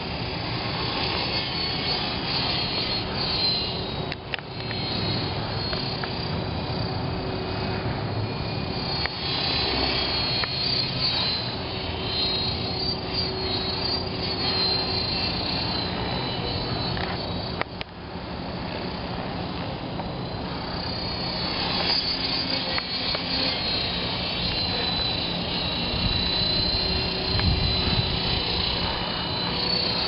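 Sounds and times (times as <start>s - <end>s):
rc helicopter rotors whirring: 0.0s - 30.0s
wind noise: 19.0s - 30.0s.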